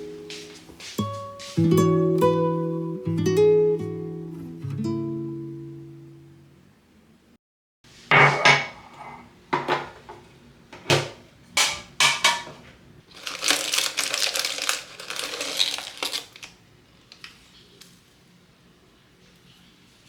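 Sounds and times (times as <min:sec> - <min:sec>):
dishes clinking and clattering: 0:08.1 - 0:10.2, 0:11.0 - 0:12.6.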